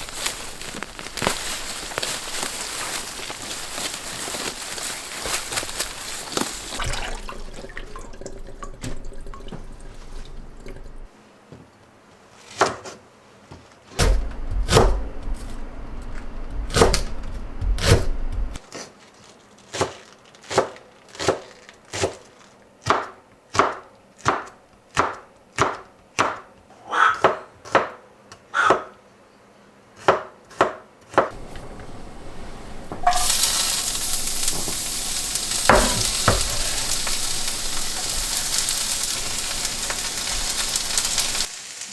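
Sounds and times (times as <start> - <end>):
food sizzling in a pan: 0.0 - 7.6, 31.3 - 41.9
knife chopping on wooden board: 14.0 - 18.6, 30.0 - 32.0, 35.7 - 38.0.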